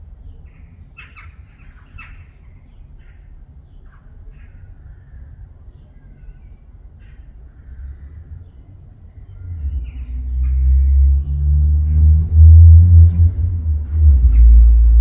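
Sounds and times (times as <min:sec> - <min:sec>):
birds calling harshly: 0:00.2 - 0:11.4
steady low rumble: 0:06.4 - 0:15.0.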